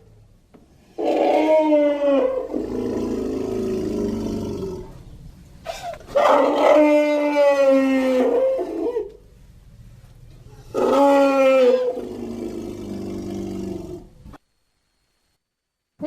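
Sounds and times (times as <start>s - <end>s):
low rough growl: 1.0s - 5.0s, 10.6s - 14.2s.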